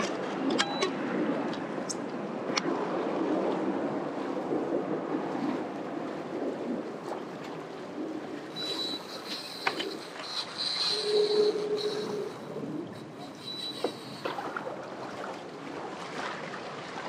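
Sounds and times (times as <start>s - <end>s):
water sloshing: 5.2s - 17.0s
wind rushing: 7.9s - 14.8s.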